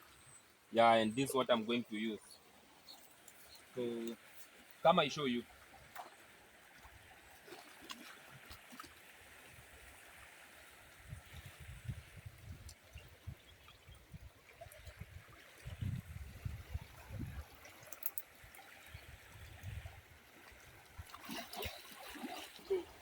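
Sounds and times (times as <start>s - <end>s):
flooded river flowing: 14.3s - 23.0s.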